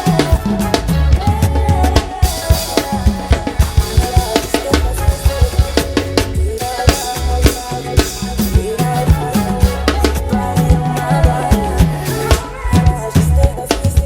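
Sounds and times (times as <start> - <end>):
afrobeat song with bass: 0.0 - 14.0
drum kit kick and snare: 0.0 - 14.0.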